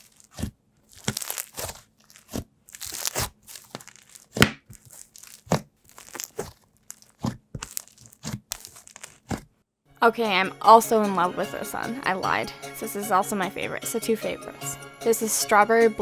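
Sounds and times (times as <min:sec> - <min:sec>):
slime squishing with sticky pops: 0:00.0 - 0:09.5.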